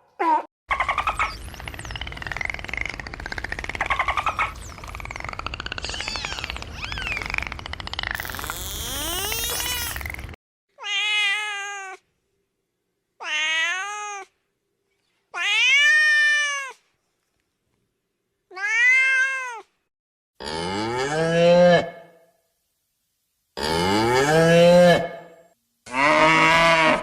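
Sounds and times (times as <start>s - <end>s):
cat meowing: 10.8s - 12.0s, 18.5s - 19.6s
cow mooing: 25.9s - 27.0s.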